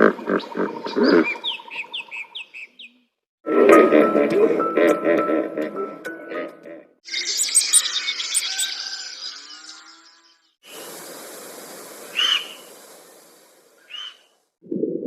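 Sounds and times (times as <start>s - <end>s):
steady hiss: 10.6s - 14.1s.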